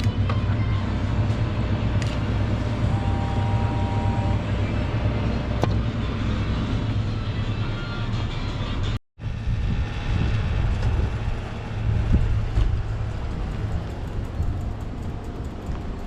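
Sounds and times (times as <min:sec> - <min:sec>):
wind and road noise rumble: 0:00.0 - 0:16.0
two-note tone: 0:02.8 - 0:04.6.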